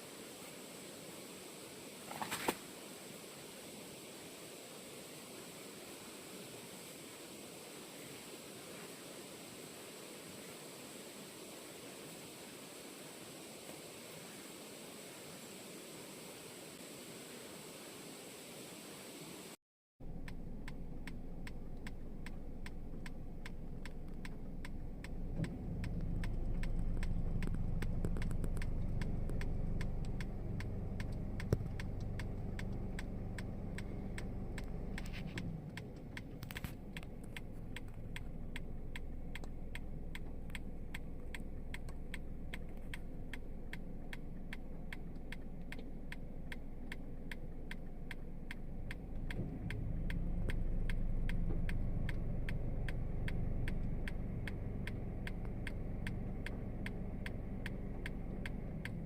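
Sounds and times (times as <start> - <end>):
low mechanical hum: 19.4 - 59.0
fast even ticking: 20.1 - 59.0.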